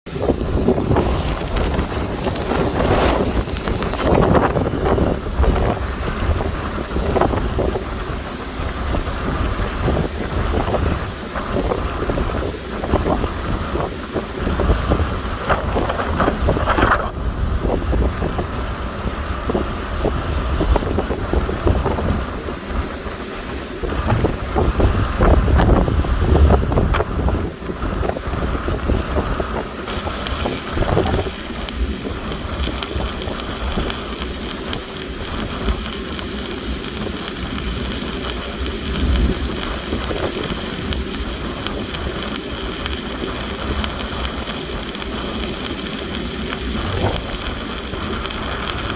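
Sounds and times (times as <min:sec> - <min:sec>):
welding arc crackling: 0:00.2 - 0:17.1, 0:29.8 - 0:48.9.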